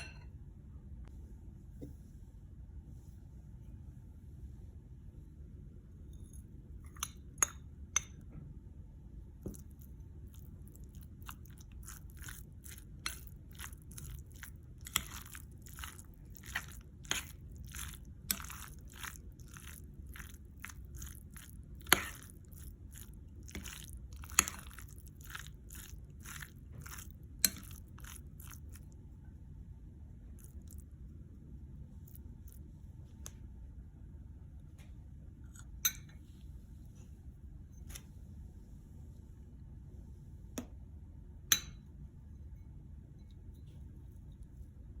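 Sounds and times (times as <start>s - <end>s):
low steady hum: 0.0s - 45.0s
crisp food being chewed: 9.4s - 29.0s, 30.3s - 31.0s.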